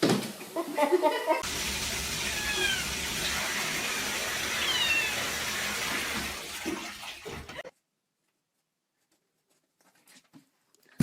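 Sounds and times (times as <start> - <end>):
cat meowing: 2.3 - 2.9, 4.5 - 5.3.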